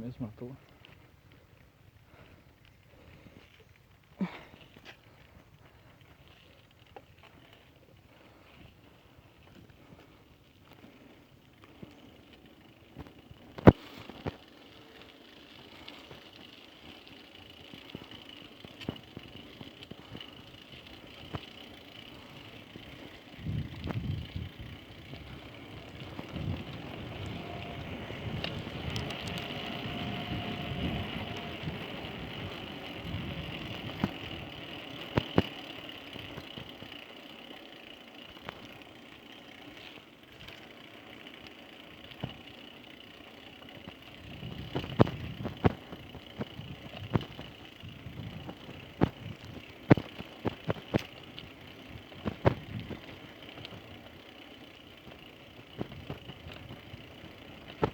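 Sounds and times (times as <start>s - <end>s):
street traffic engines passing: 27.2s - 33.4s.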